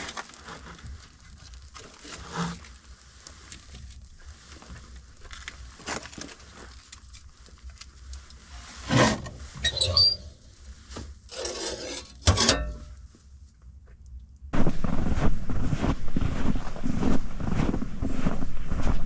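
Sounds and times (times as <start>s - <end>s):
knocks and scrapes of objects: 8.8s - 13.0s.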